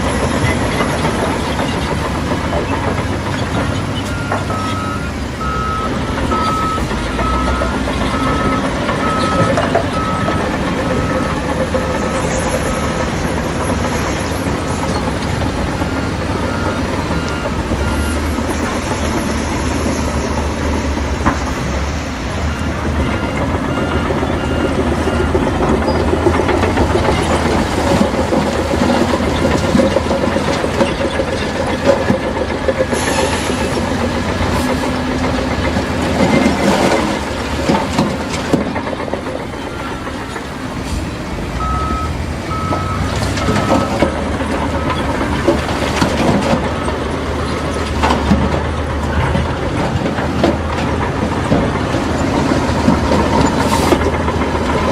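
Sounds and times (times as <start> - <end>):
bulldozer diesel engine running: 0.0 - 54.9
steel tracks clanking: 0.0 - 54.9
short evenly spaced beeps: 41.6 - 44.1.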